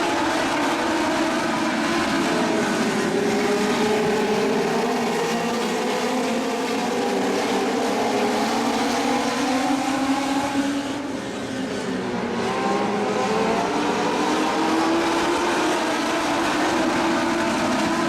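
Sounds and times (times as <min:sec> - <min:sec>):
race car engines at speed: 0:00.0 - 0:18.0.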